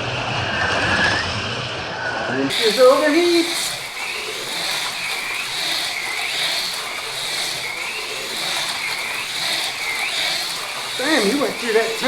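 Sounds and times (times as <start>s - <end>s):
slot car motors whining: 2.5s - 12.0s.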